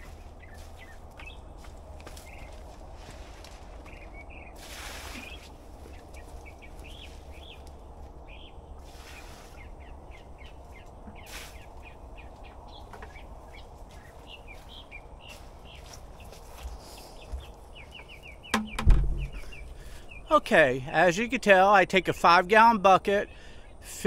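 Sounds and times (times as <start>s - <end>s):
small birds chirping: 0.0s - 22.0s
steady low rumble: 18.8s - 20.2s.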